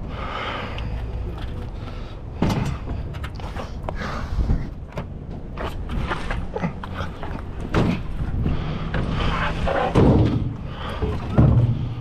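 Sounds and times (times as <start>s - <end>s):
steady low rumble: 0.0s - 12.0s
scrap metal knocking and clattering: 8.9s - 12.0s.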